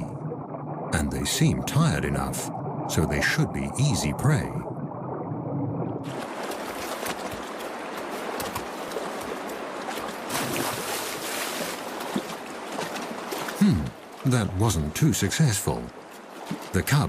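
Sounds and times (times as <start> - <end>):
water splashing: 0.0 - 17.0
stream rushing over rocks: 6.0 - 14.9.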